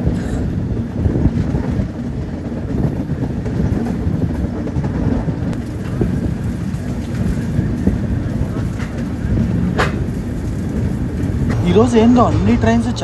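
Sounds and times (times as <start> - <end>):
train rumbling at speed: 0.0 - 13.0
wheels clattering on rails: 0.0 - 13.0.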